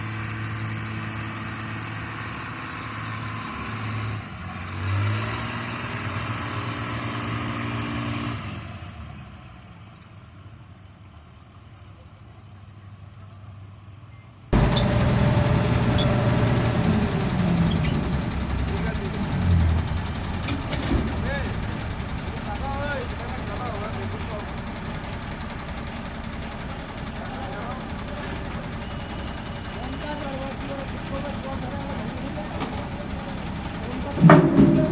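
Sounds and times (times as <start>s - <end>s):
deep loud engine: 0.0s - 13.2s, 14.5s - 34.9s
heavy engines running: 0.0s - 34.9s.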